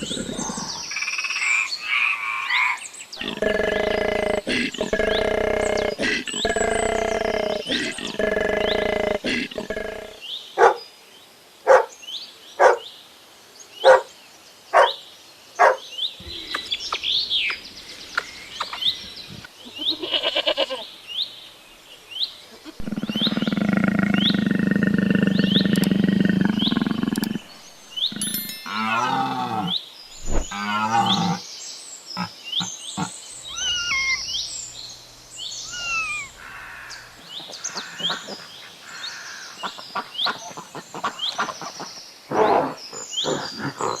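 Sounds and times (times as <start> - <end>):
animal calls: 0.0 - 1.0, 2.5 - 10.8, 22.5 - 31.4, 32.2 - 44.0
long low animal call: 0.0 - 1.0, 3.2 - 10.2, 22.5 - 31.4, 32.2 - 44.0
high chirps: 25.4 - 30.5, 33.4 - 38.6.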